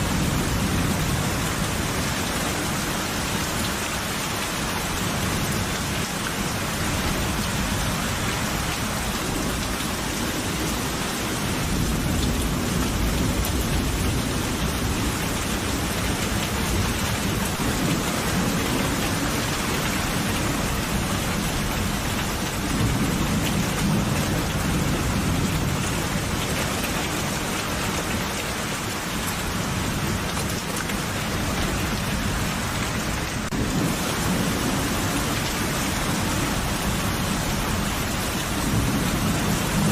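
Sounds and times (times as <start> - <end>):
heavy rain: 0.0 - 39.9
low rolling thunder: 33.0 - 39.9.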